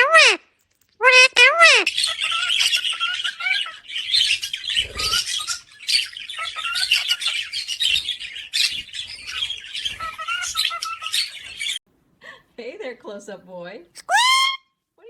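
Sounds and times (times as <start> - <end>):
parrot chattering: 1.0 - 11.8, 14.0 - 14.6.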